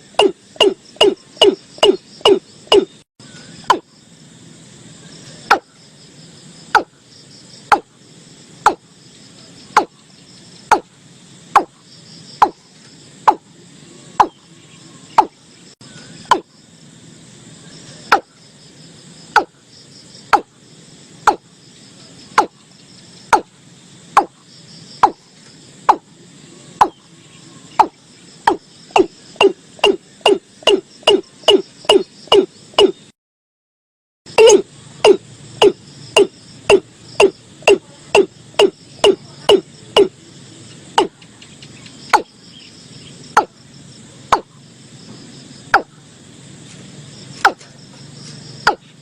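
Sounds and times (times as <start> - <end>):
bird calling hollow kok notes: 0.0 - 4.0, 12.4 - 16.6, 21.3 - 23.5, 25.9 - 33.1
crickets chirping: 0.0 - 33.2, 34.3 - 49.0.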